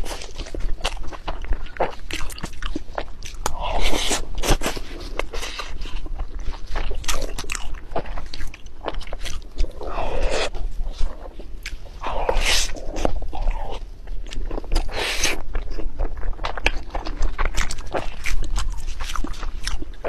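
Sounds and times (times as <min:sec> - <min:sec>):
person chewing: 0:00.0 - 0:20.0.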